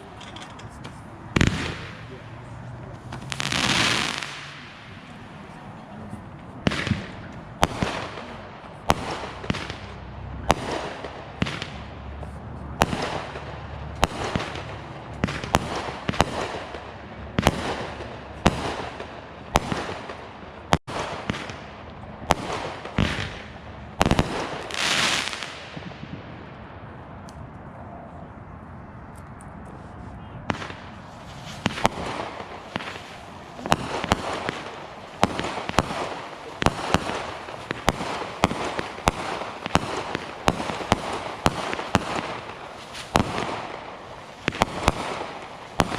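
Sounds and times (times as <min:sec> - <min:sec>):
fireworks bangs: 0:00.0 - 0:26.7, 0:30.4 - 0:45.9
firework hiss: 0:03.0 - 0:05.5, 0:22.4 - 0:25.8, 0:30.6 - 0:45.9.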